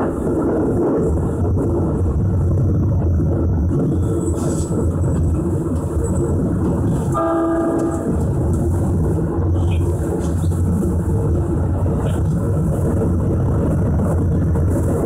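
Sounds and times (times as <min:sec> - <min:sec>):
electric train rumbling: 0:00.0 - 0:15.0
train horn blast: 0:07.1 - 0:08.5.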